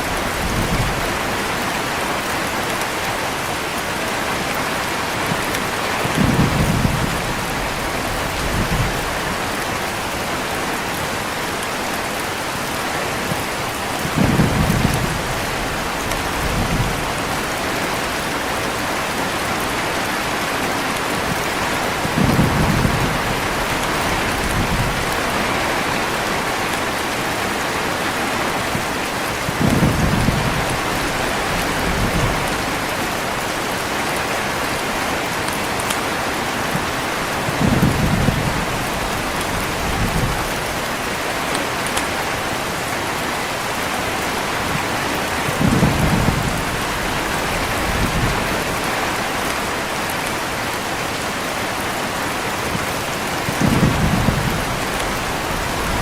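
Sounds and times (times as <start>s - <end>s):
heavy rain: 0.0s - 56.0s
low rolls of thunder: 6.0s - 9.5s, 14.0s - 17.9s, 21.4s - 26.6s, 29.5s - 33.0s, 45.4s - 48.9s, 53.4s - 56.0s.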